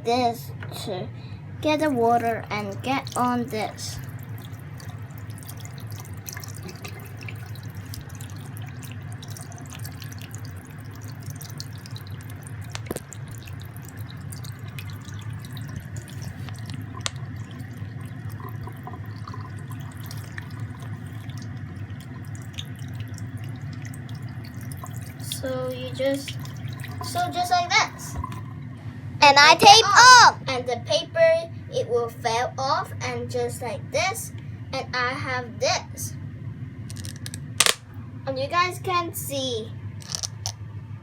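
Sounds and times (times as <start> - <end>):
low background hum: 0.0 - 41.0
small objects clicking and tapping: 36.9 - 37.8, 40.0 - 40.6.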